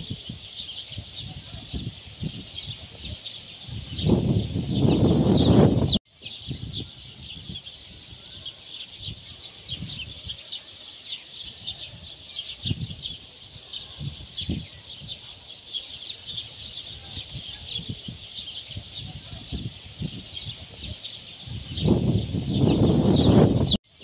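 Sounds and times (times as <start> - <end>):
chorus of small birds chirping: 0.0 - 24.0.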